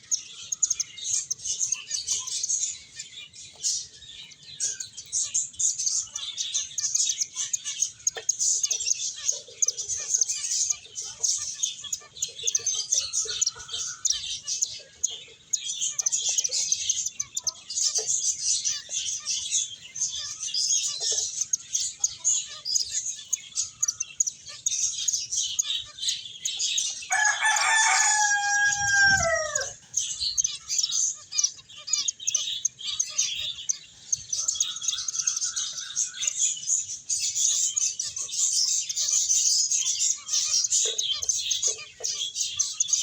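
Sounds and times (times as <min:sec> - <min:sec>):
finches chirping: 0:00.0 - 0:43.0
drawn out falling bird call: 0:27.1 - 0:29.8.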